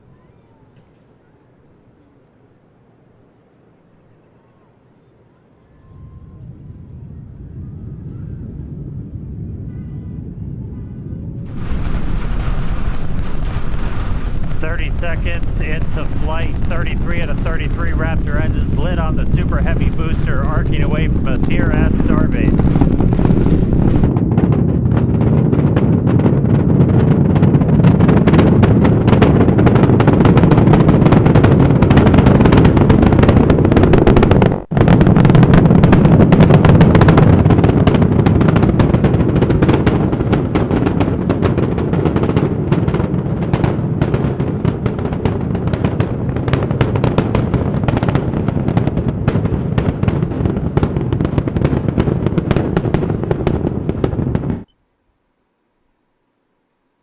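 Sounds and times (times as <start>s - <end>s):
rocket engines roaring with crackling: 6.0s - 54.7s.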